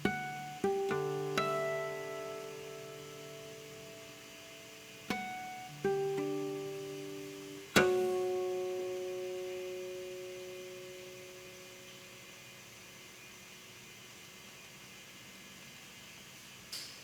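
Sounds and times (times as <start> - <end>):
solo guitar plucked notes: 0.0 - 12.2.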